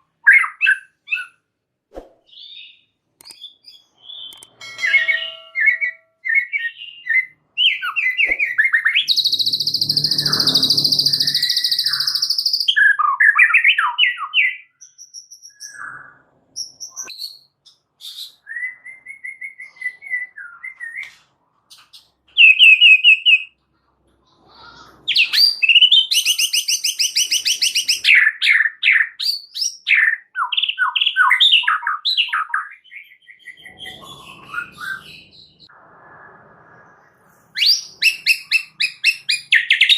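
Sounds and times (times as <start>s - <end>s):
bird singing whistles and trills: 2.3s - 21.1s, 25.1s - 36.9s, 37.5s - 39.9s
bird harsh buzzing chatter: 9.0s - 12.6s.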